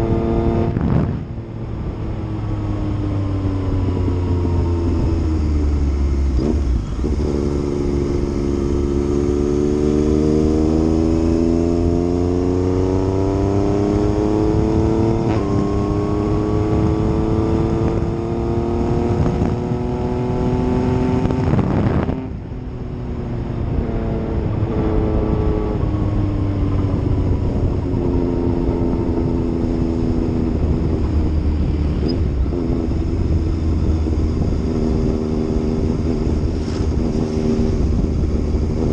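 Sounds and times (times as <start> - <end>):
motorcycle engine pulling under load: 28.4 - 38.9.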